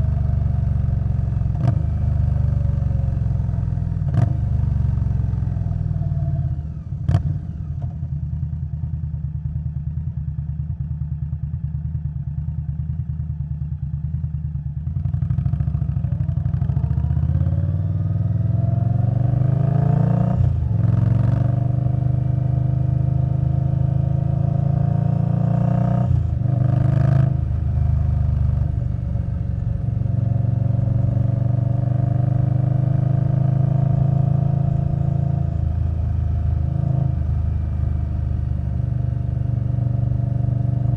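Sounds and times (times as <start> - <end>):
motorcycle engine: 12.9 - 40.9.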